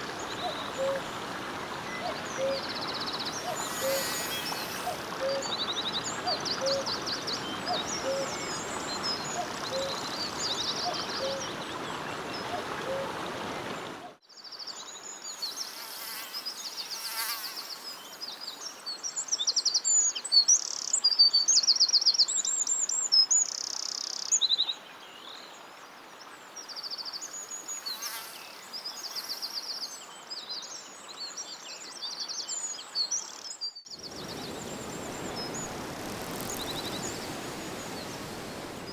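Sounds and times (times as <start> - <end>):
songbirds trilling and chirping: 0.0 - 13.9, 32.4 - 38.9
steady rushing noise: 2.2 - 6.2, 34.0 - 38.9.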